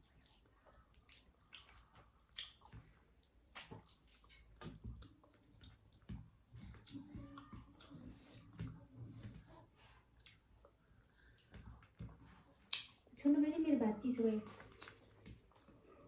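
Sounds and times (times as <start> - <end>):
chewing with wet squishes: 0.0 - 16.0
small clicks of food: 14.4 - 15.8.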